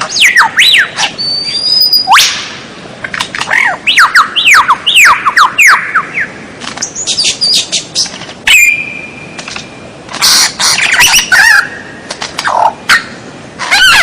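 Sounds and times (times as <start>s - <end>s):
songbird singing whistles and trills: 0.1s - 2.4s, 3.5s - 9.5s, 10.2s - 12.0s.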